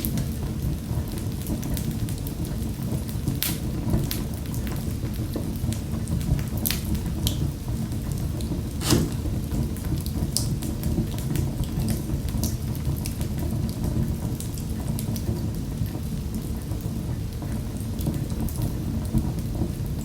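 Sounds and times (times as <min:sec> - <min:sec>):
flames rumbling: 0:00.2 - 0:20.0
fire crackling: 0:03.0 - 0:04.6, 0:06.0 - 0:11.4.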